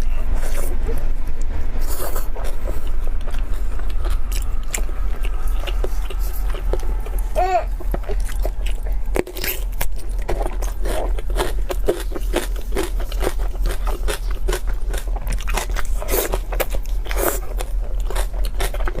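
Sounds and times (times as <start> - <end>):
steady low hum: 0.0 - 19.0
person chewing seafood: 0.4 - 19.0.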